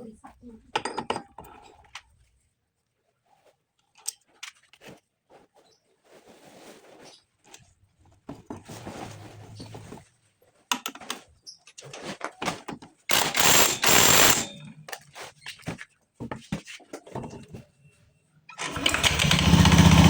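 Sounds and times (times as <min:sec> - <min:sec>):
metal tools clicking and knocking: 0:00.8 - 0:01.5.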